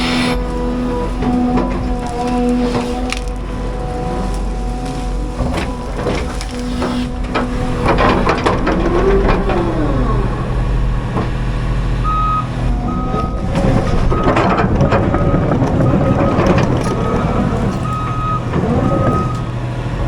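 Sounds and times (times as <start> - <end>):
diesel engine running: 0.0 - 20.0
machinery clanking and crackling: 0.0 - 20.0
backup alarm beeping: 12.0 - 19.5.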